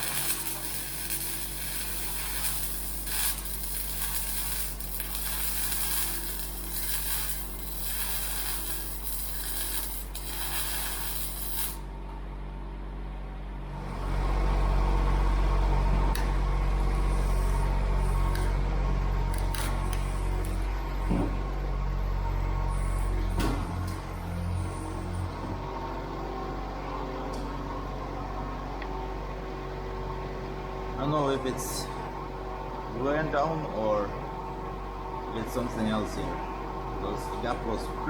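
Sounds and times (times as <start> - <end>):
welder crackling and sizzling: 0.0 - 11.9, 16.9 - 18.5, 19.2 - 20.6
loud low hum: 0.0 - 38.0.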